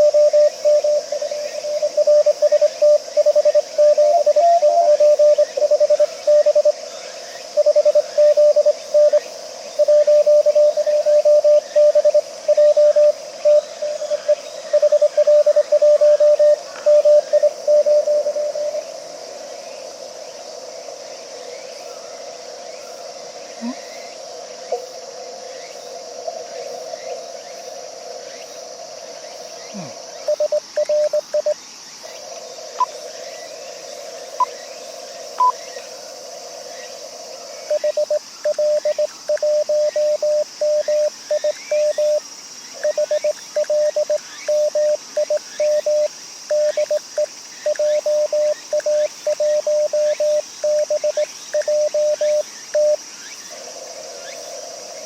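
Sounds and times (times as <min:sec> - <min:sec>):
insect chorus: 0:00.0 - 0:55.0.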